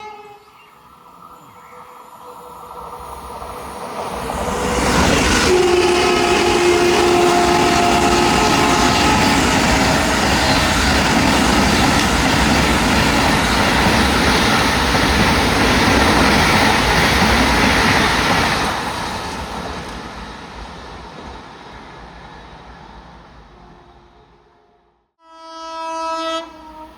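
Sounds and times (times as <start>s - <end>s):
train horn: 0.0s - 0.6s, 4.4s - 10.6s, 23.6s - 26.9s
train rumble and wheel noise: 0.0s - 25.0s.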